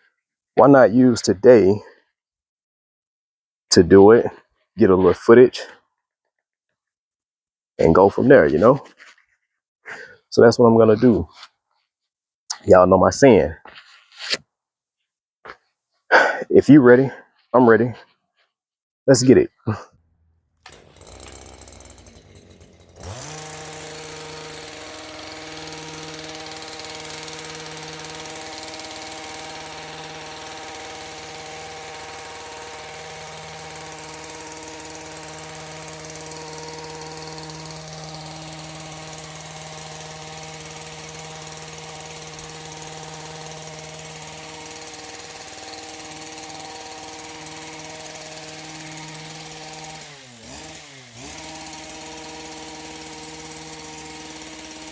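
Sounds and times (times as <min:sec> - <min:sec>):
gas trimmer engine running: 0:20.6 - 0:54.9.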